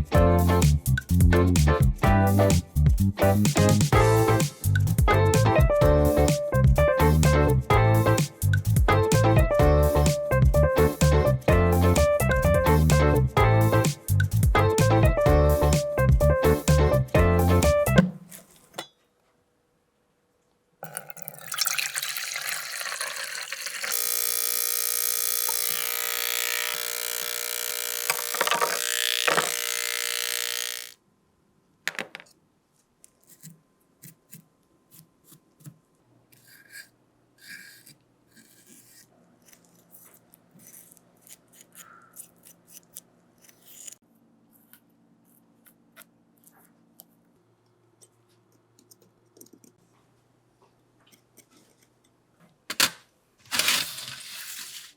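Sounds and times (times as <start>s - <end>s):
motor running loudly: 23.9s - 31.0s.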